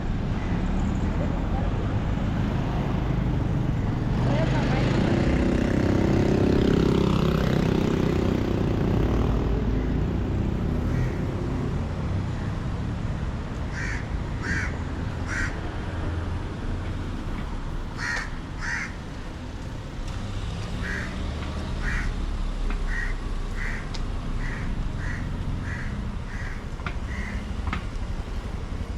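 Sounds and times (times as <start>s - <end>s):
motor vehicle running: 0.0s - 28.9s
bird calling: 13.7s - 15.6s, 18.0s - 19.0s, 20.8s - 22.2s, 22.8s - 27.6s.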